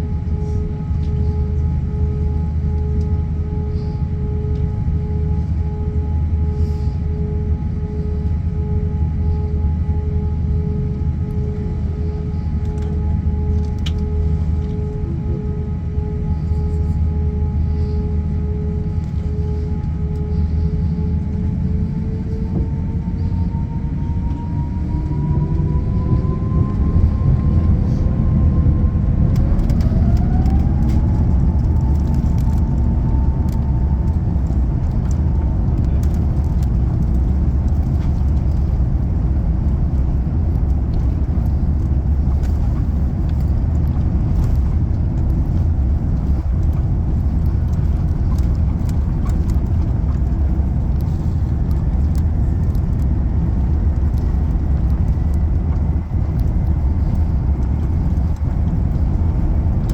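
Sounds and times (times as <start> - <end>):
low cabin rumble with rattles: 0.0 - 59.9
jet engines spooling up: 16.1 - 52.7.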